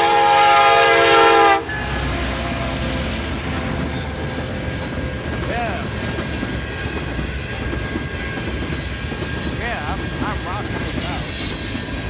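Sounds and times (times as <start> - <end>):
locomotive air horn: 0.0 - 5.2
train rumble and rail noise: 0.0 - 12.0.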